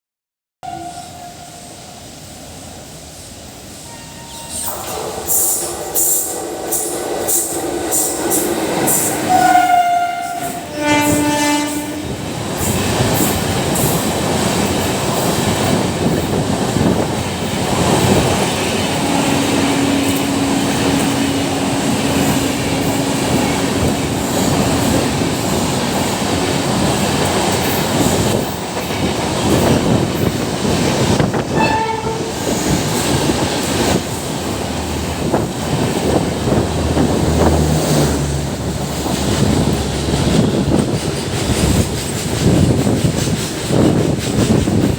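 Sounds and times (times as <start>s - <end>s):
train horn blasts: 0.6s - 1.7s, 3.9s - 4.7s, 9.2s - 12.2s, 18.7s - 27.9s, 31.5s - 32.8s
train wheels rumbling on rails: 1.1s - 44.9s.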